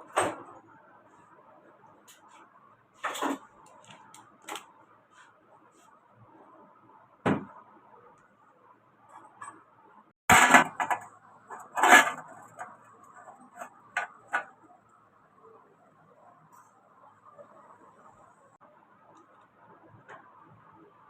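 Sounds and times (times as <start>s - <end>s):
knocks and clatters of tools: 10.3s - 14.6s.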